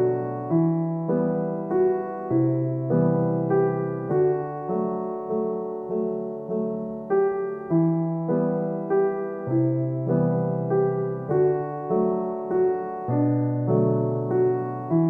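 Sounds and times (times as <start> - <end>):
slow electric piano melody: 0.0 - 15.0.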